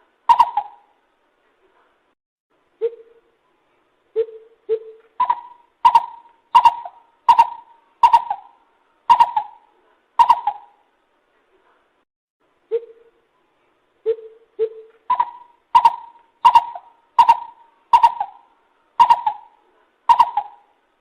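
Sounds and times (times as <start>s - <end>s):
bird hooting calls: 0.3s - 0.9s, 4.2s - 10.8s, 14.0s - 20.8s.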